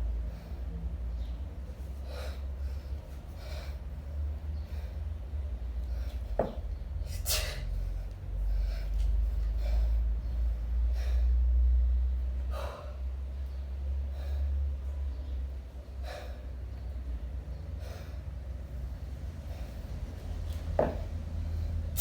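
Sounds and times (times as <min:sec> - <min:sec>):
steady low rumble: 0:00.0 - 0:22.0
sharp forceful breaths: 0:16.0 - 0:16.6, 0:17.7 - 0:20.0.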